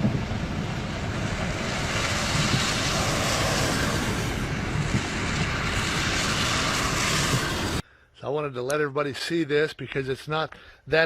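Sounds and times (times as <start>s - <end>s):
wind noise on microphone: 0.0s - 7.8s.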